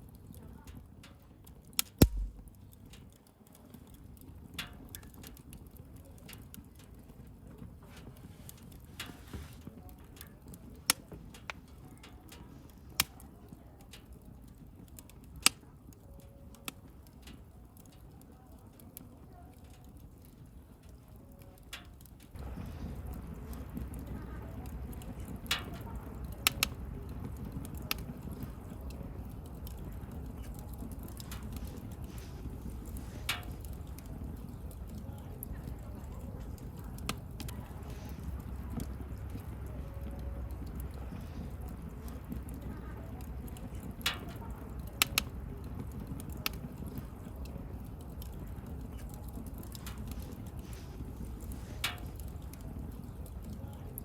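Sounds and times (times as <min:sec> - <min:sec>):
bonfire crackling: 0:00.0 - 0:54.0
campfire rumbling: 0:00.0 - 0:54.0
loud fire pops: 0:01.8 - 0:02.8.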